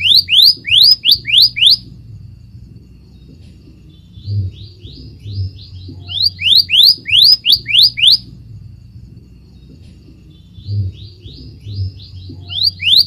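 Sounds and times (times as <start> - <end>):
bird singing whistled notes: 0.0 - 2.0, 2.8 - 13.0.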